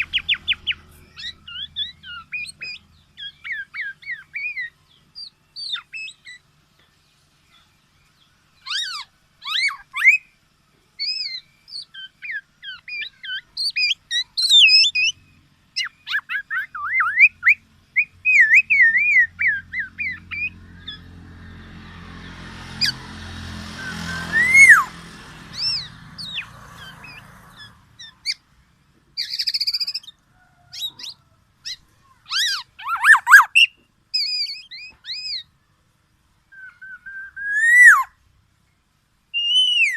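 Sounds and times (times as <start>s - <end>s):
bird whistling and warbling: 0.0s - 6.5s, 8.6s - 10.4s, 11.0s - 21.1s, 23.7s - 28.5s, 29.2s - 35.5s, 36.5s - 38.2s, 39.3s - 39.9s
low hum and hiss: 0.0s - 21.4s, 25.2s - 39.9s.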